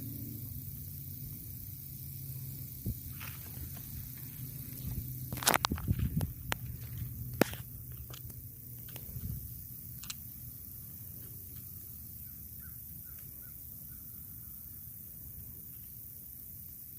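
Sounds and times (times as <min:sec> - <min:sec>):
steady hiss: 0:00.0 - 0:16.9
sharp click: 0:10.0 - 0:10.2
faint bird chirps: 0:12.1 - 0:14.9.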